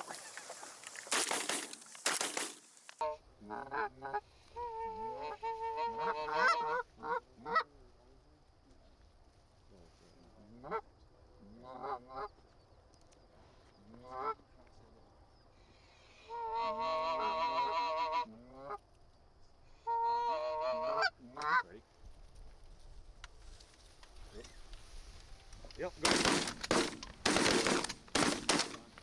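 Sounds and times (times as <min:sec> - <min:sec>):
geese honking: 0:05.3 - 0:07.6.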